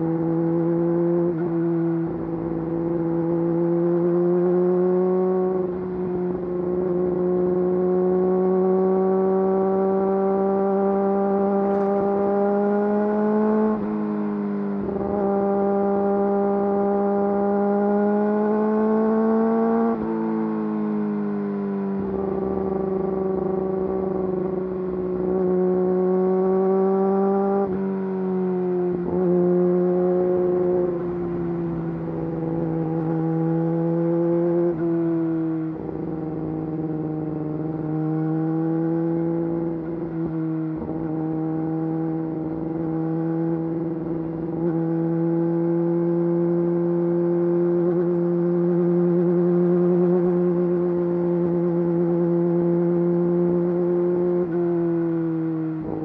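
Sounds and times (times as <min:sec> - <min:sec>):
motorcycle engine running: 0:29.1 - 0:38.0.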